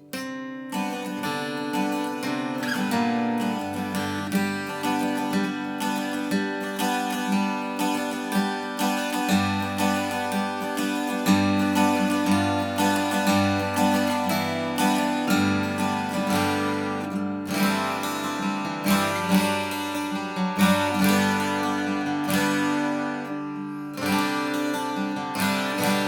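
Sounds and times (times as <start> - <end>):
acoustic guitar playing: 0.0 - 26.0.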